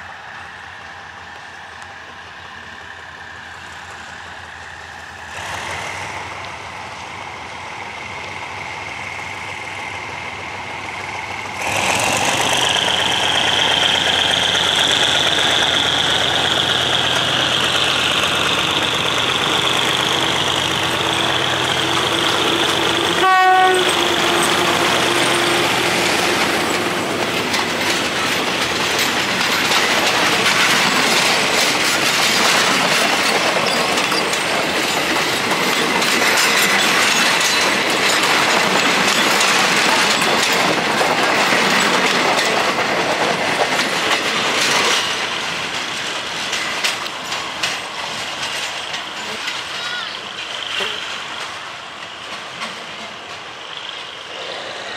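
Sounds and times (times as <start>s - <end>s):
train rumbling past: 0.0s - 54.9s
wheels clattering over rail joints: 8.1s - 54.9s
locomotive horn blast: 22.9s - 25.8s.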